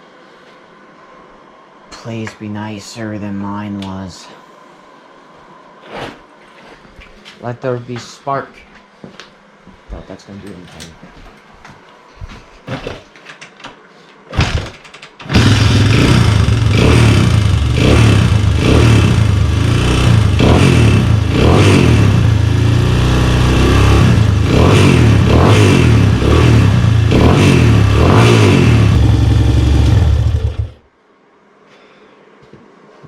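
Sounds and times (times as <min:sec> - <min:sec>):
engine starting attempts: 0:14.3 - 0:15.9
engine revving: 0:15.3 - 0:30.8.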